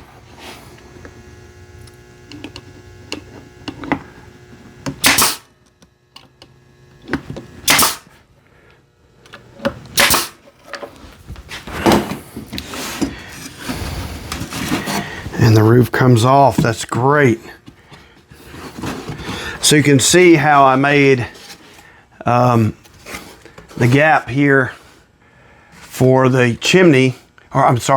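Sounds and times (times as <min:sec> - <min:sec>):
brad nailer firing: 0:04.8 - 0:05.7, 0:07.2 - 0:08.2, 0:09.9 - 0:10.5.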